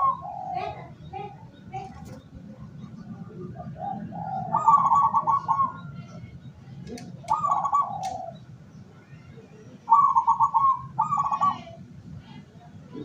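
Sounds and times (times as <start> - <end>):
dove cooing: 0.0 - 2.2, 2.9 - 6.0, 7.0 - 8.4, 9.8 - 11.9.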